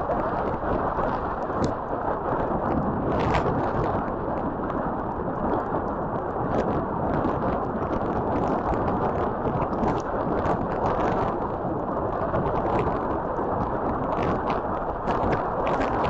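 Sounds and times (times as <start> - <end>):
heavy rain drops pattering: 0.0 - 16.0
strong wind rushing: 0.0 - 16.0.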